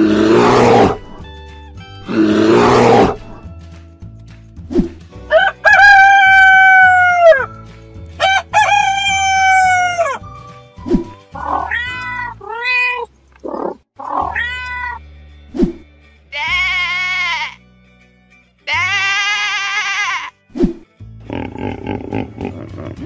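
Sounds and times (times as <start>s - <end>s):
background music with bass line: 0.0s - 12.2s, 20.5s - 23.0s
rooster crowing: 5.3s - 7.5s, 8.2s - 10.2s
cat meowing: 11.4s - 15.0s.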